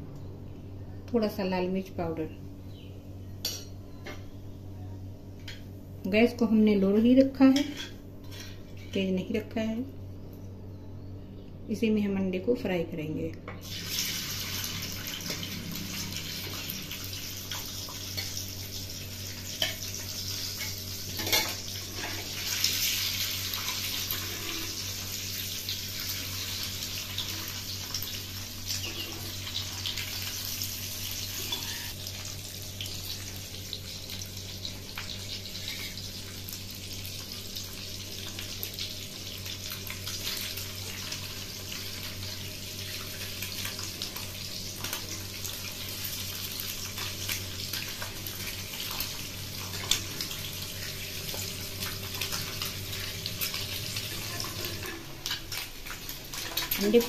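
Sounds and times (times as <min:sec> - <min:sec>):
eggs sizzling in hot oil: 0:13.6 - 0:57.0
metal spatula scraping pan: 0:31.4 - 0:31.9.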